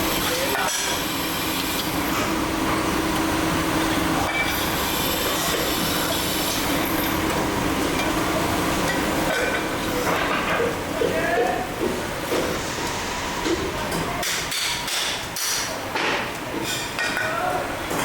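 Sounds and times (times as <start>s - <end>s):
machinery hum: 0.0s - 14.2s
mechanical noise: 0.0s - 15.9s.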